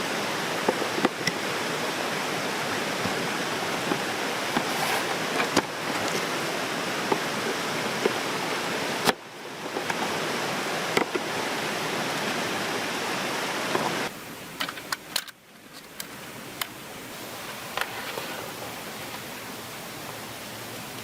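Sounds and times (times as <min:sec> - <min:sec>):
steady rushing noise: 0:00.0 - 0:14.5.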